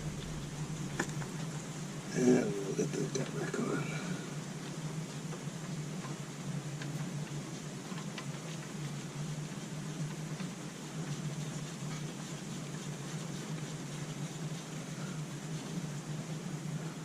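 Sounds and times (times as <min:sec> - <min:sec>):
even hiss: 0:00.0 - 0:05.0
steady low hum: 0:00.0 - 0:17.0.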